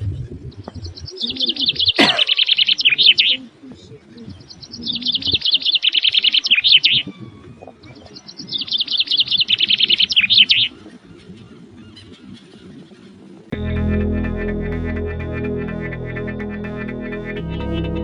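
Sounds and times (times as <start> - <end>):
songbird trilling: 0.7 - 3.4, 4.3 - 7.4
music: 13.6 - 18.0.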